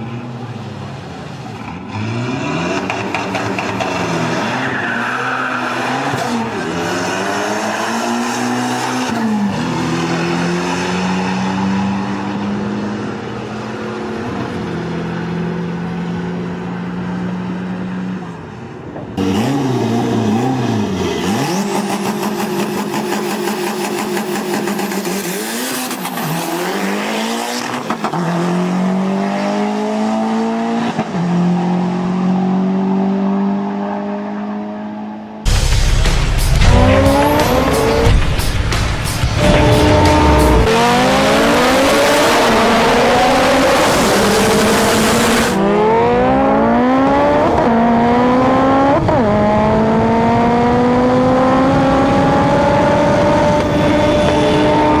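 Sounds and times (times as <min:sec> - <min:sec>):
car engine revving at high revs: 0:36.4 - 0:55.0.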